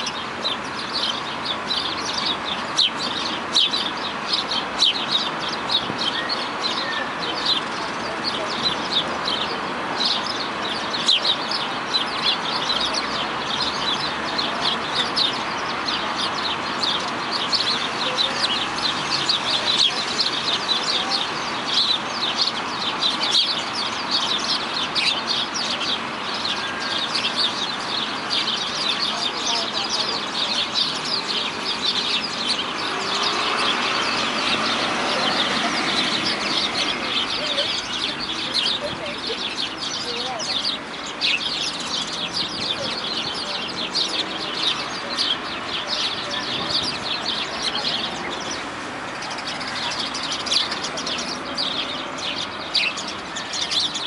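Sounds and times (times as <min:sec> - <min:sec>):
birds chirping and calling: 0:00.0 - 0:54.0.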